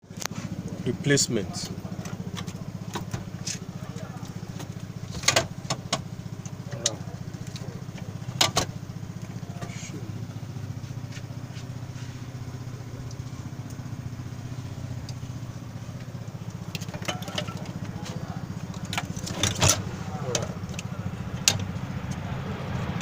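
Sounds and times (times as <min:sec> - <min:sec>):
engine droning: 0:00.0 - 0:23.0
sharp knocks and clatter: 0:01.6 - 0:09.8, 0:15.1 - 0:21.8.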